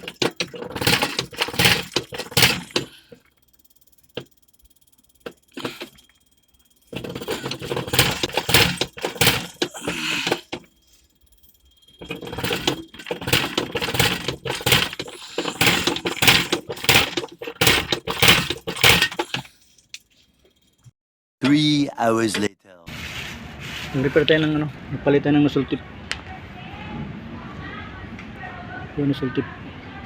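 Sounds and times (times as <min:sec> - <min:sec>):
metal tools clinking and clattering: 0:00.0 - 0:03.4, 0:05.1 - 0:20.0.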